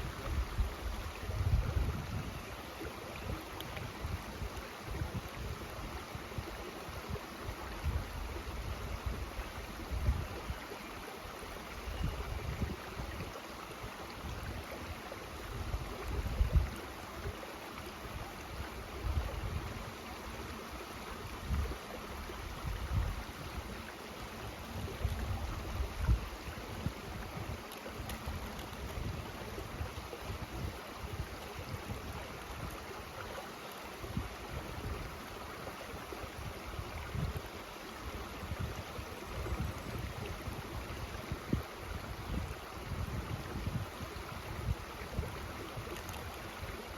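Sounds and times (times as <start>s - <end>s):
wind buffeting microphone: 0.0s - 2.4s, 15.5s - 16.8s, 24.6s - 32.9s, 38.5s - 46.7s
mountain stream rushing: 0.0s - 46.9s.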